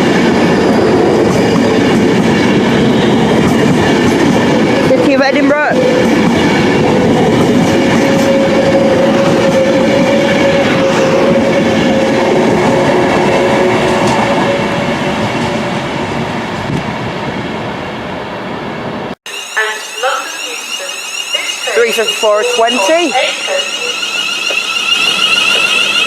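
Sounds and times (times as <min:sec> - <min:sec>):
train wheels rumbling on rails: 0:00.0 - 0:26.0
high hum: 0:19.3 - 0:26.0.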